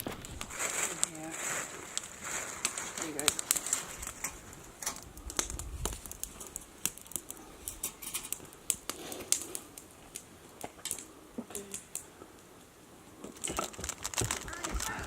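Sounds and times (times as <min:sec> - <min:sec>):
burning wood hiss: 0:00.0 - 0:15.0
campfire crackling: 0:00.0 - 0:15.0.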